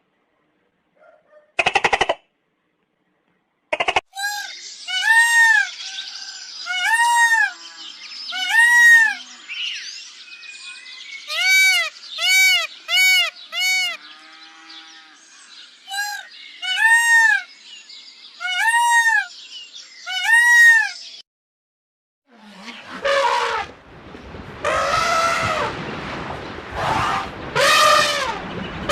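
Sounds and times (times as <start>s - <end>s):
peacock calling: 3.8s - 9.9s, 10.6s - 21.2s, 22.4s - 23.8s, 24.6s - 25.8s, 26.8s - 28.9s.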